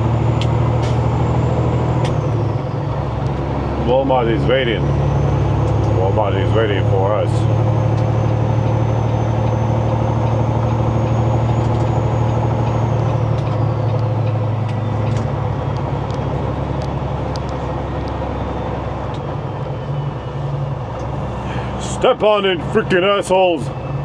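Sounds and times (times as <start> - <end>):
diesel truck engine drone: 0.0 - 24.0.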